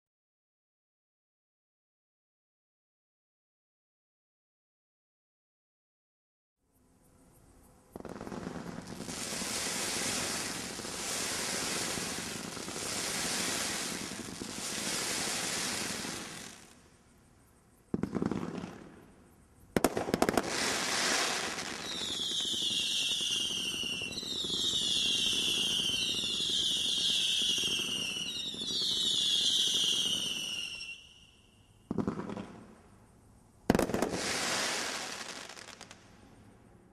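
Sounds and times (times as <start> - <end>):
fireworks hissing: 8.0 - 16.8, 20.0 - 31.3, 33.7 - 36.1
falling whistles: 20.8 - 31.9.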